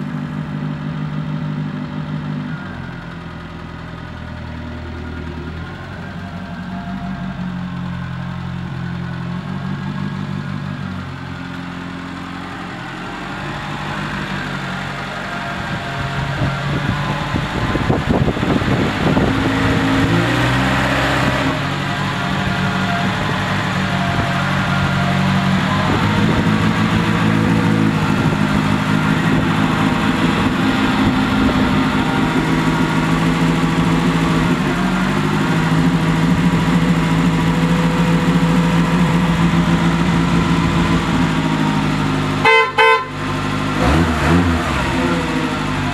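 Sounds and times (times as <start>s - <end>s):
car engine idling: 0.0s - 45.9s
car horn toot: 42.4s - 44.0s.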